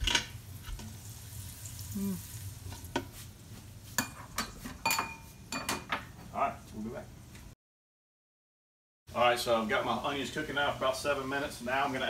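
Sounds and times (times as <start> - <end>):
onions sizzling in a pot: 0.0 - 5.5, 9.2 - 12.0.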